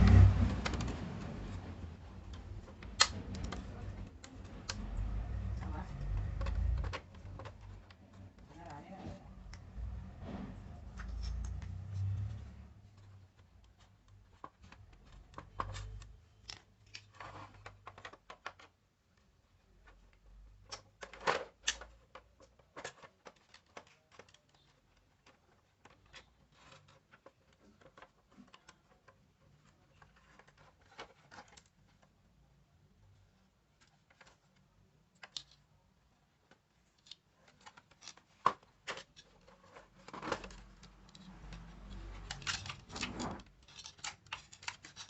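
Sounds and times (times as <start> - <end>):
clicks and taps of small parts: 35.1 - 35.7.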